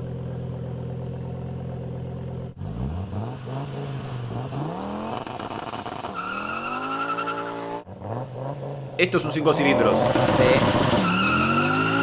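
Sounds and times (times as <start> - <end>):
car engine idling: 0.0 - 2.6
car engine revving: 0.0 - 12.0.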